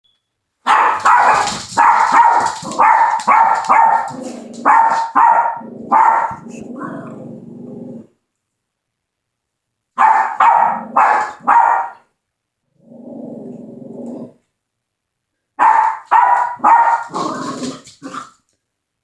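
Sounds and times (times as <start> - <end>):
dogs barking: 0.6 - 6.6, 10.0 - 12.0, 15.6 - 18.3.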